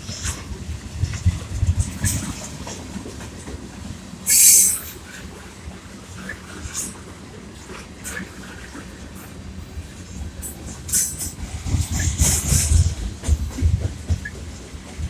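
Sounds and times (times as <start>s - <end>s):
freight train wheels rumbling: 0.0s - 15.0s
train clicks and clanks: 0.0s - 15.0s
hissing noise: 4.3s - 4.9s.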